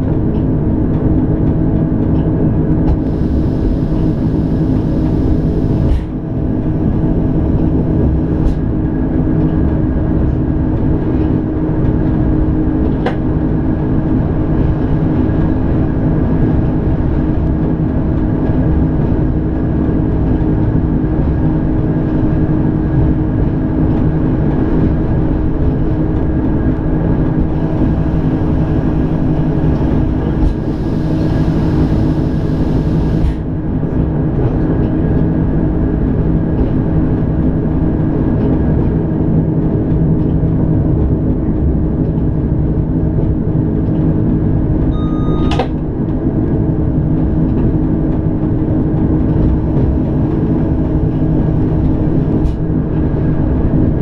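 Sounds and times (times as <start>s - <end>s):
steady hum tones: 0.0s - 38.3s
train drive rumble: 0.0s - 54.0s.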